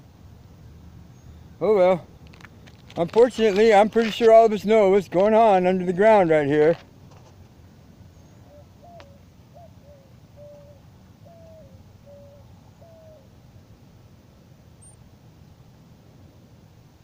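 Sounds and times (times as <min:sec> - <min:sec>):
bird hooting: 0:08.2 - 0:13.3.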